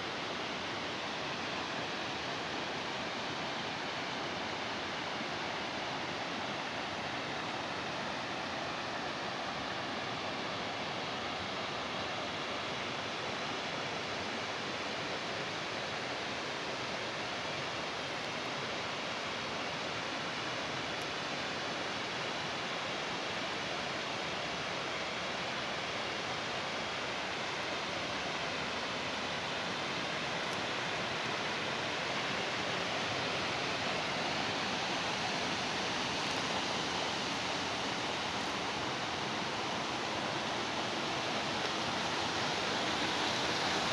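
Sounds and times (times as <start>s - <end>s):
water rushing in stream: 17.1s - 43.9s.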